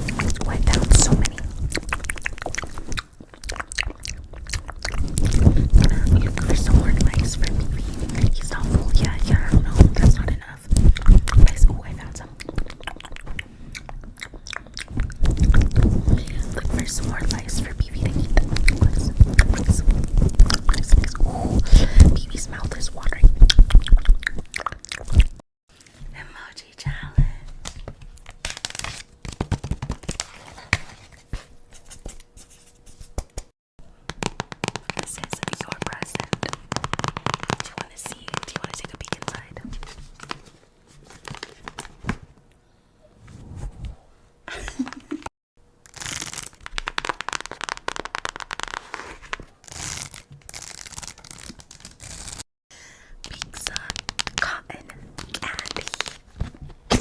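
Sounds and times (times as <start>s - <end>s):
material crinkling and crackling: 4.4s - 11.5s, 15.0s - 21.2s, 34.6s - 42.2s, 45.9s - 52.4s, 55.2s - 56.7s.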